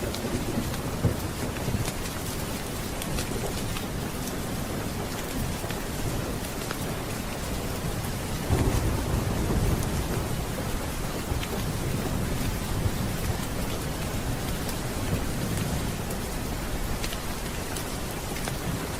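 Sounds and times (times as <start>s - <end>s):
steady rain: 0.0s - 18.9s
thunder rumbling: 7.8s - 16.9s.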